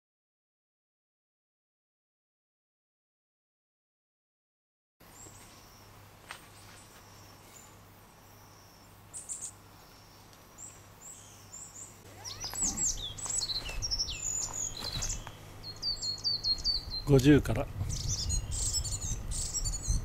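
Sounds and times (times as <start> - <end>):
faint low hum: 5.0 - 20.0
songbirds chirping: 5.0 - 20.0.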